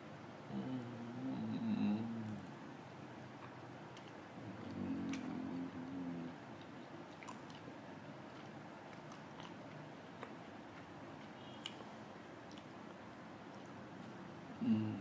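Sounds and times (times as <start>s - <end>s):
wet mouth clicks: 3.4s - 7.7s, 12.5s - 12.7s
person chewing food: 3.4s - 13.8s.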